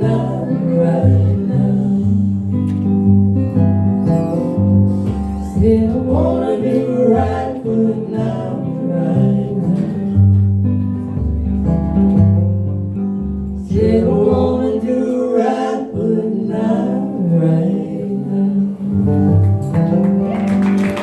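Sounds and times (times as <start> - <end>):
person singing: 0.0 - 2.5, 4.1 - 10.2
low bass line: 0.0 - 20.3
guitar: 0.0 - 21.0.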